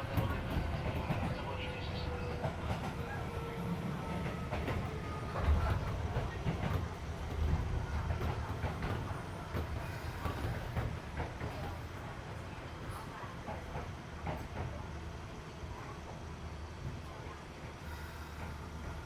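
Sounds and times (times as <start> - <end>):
rail joint clacks: 0.0 - 14.8
train wheels rumbling on track: 0.0 - 19.0.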